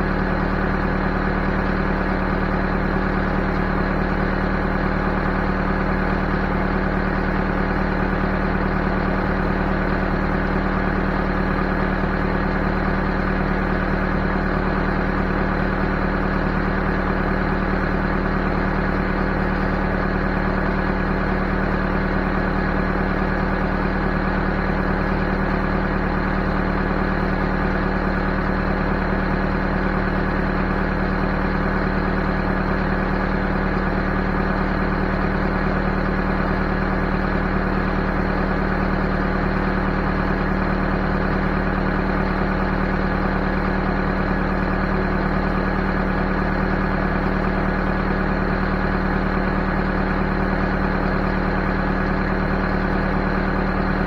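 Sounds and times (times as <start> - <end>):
backhoe engine running: 0.0 - 54.0.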